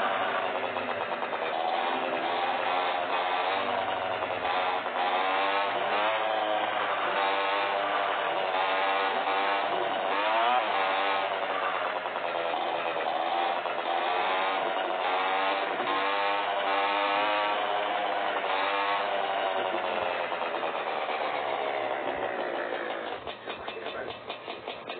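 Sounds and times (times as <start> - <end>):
motorcycle engines revving: 0.0 - 24.9.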